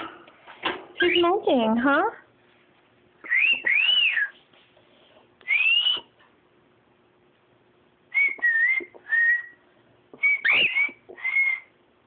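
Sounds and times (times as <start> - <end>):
whistled notes: 3.2 - 4.4, 5.4 - 6.1, 8.1 - 9.6, 10.2 - 11.7.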